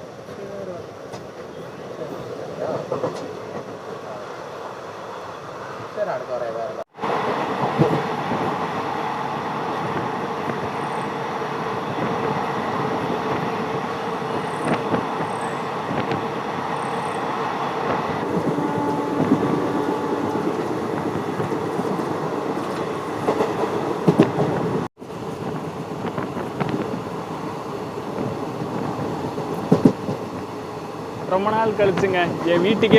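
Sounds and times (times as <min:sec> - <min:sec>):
train rumbling on rails: 0:00.0 - 0:32.9.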